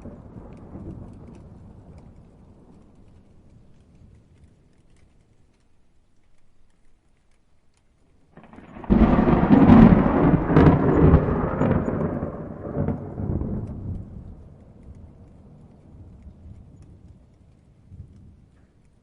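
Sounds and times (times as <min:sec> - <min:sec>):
thunderclap: 0:00.0 - 0:03.4, 0:08.4 - 0:18.6.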